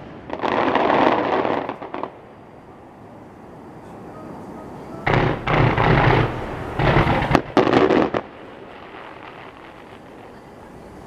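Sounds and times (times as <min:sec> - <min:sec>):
fireworks shell bursts: 0:05.0 - 0:08.3.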